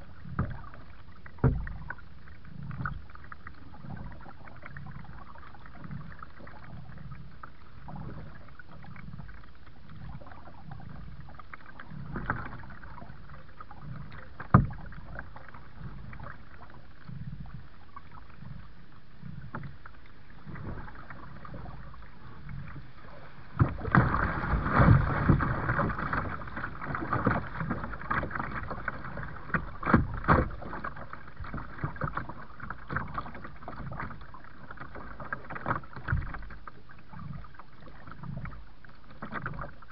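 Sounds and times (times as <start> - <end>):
choppy splashing water: 0.0 - 39.9
paddle strokes in water: 0.0 - 39.9.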